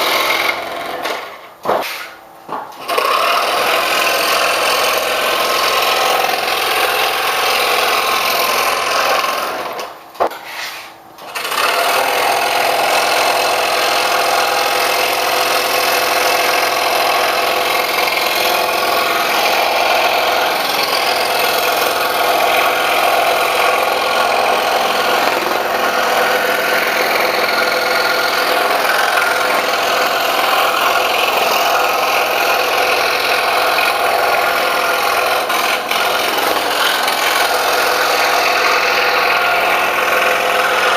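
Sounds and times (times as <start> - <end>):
scroll saw cutting wood: 0.0 - 2.2, 2.8 - 40.9.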